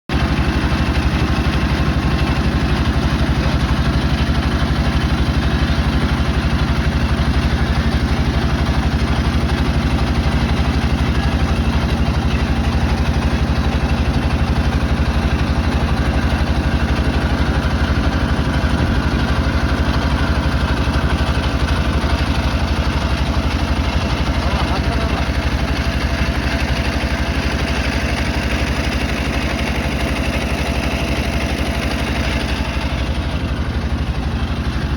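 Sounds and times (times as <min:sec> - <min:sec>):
boat engine chugging: 0:00.1 - 0:34.9.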